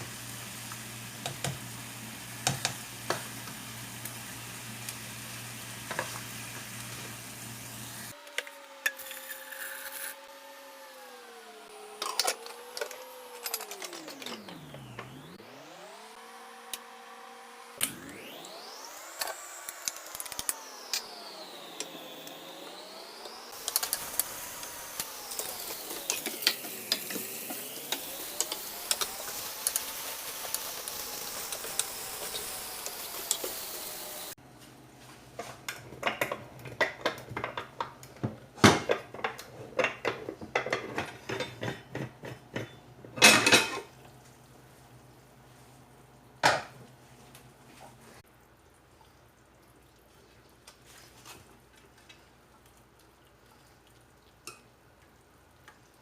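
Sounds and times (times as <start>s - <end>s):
rising and falling tone: 10.1s - 34.4s
metal utensils clinking on pots: 25.3s - 27.2s, 38.8s - 43.9s.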